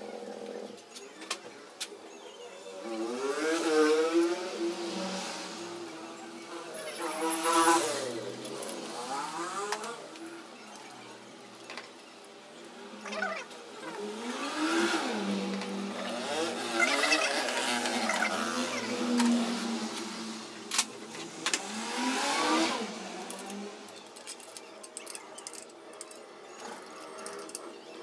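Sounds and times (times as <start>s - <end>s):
car engine revving: 2.8s - 10.4s, 14.0s - 23.9s.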